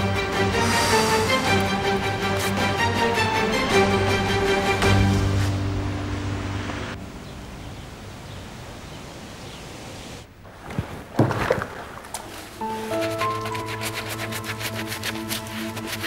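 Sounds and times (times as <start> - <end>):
background music: 0.0 - 8.3, 12.6 - 16.0
outdoor ambience hiss: 0.0 - 15.8.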